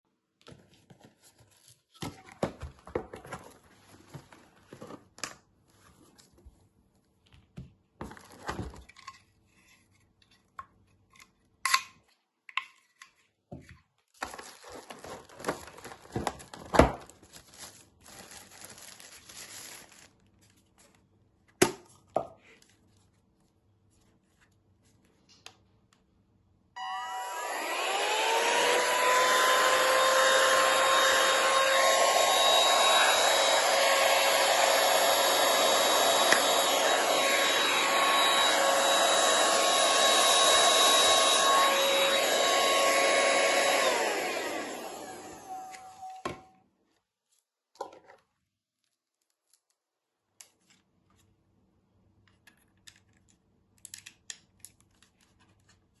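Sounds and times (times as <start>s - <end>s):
handheld vacuum cleaner whining: 26.8s - 46.5s.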